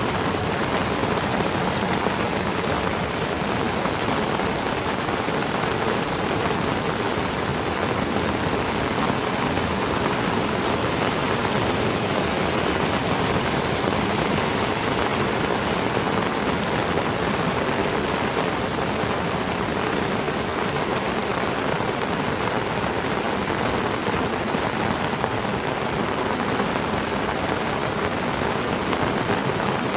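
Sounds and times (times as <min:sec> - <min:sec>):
heavy rain falling: 0:00.0 - 0:29.9.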